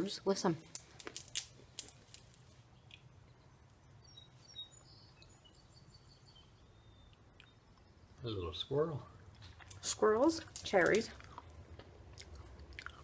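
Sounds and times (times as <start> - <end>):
faint songbird chirping: 2.1 - 11.0.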